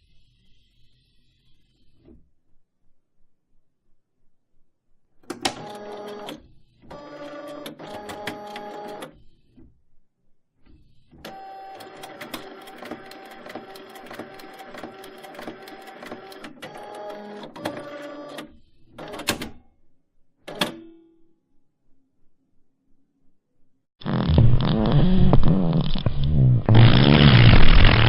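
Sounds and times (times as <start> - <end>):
mechanical clicking and whirring: 10.7 - 19.5.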